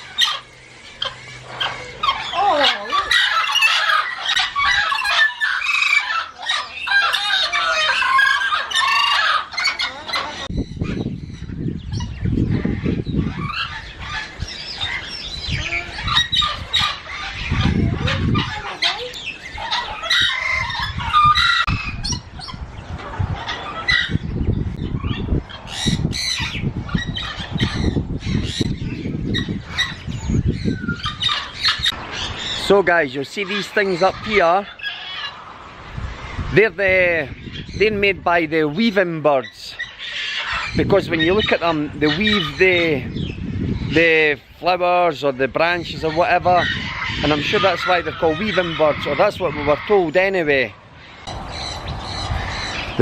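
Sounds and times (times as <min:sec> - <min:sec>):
parrots squawking and chirping: 0:00.0 - 0:53.0
low rumble: 0:51.1 - 0:53.0.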